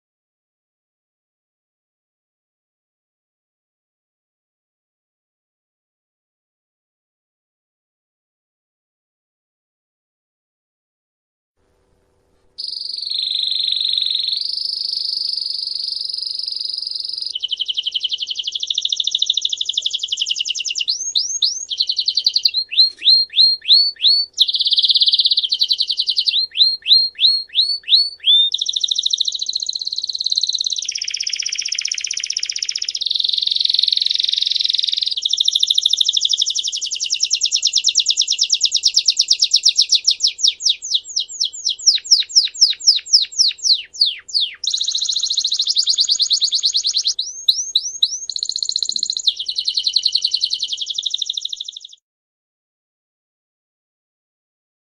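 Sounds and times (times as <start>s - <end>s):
songbird singing: 12.5s - 52.0s.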